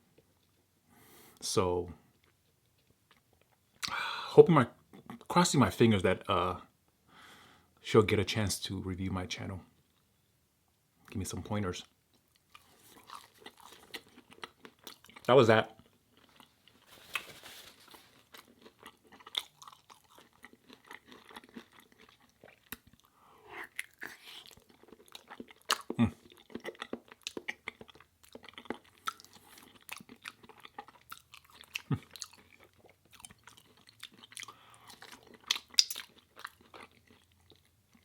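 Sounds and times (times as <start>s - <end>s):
person chewing food: 12.1s - 38.0s.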